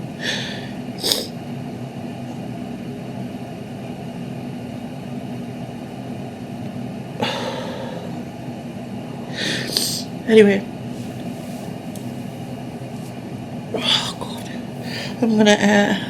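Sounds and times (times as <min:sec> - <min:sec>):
low mechanical hum: 0:00.0 - 0:16.0
short breath: 0:00.2 - 0:01.3, 0:09.3 - 0:10.0.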